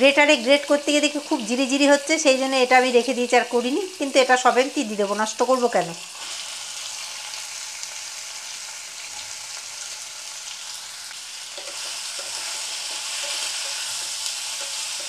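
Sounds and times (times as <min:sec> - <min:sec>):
vegetables sizzling in oil: 0:00.0 - 0:15.0
wooden spatula stirring: 0:11.6 - 0:15.0.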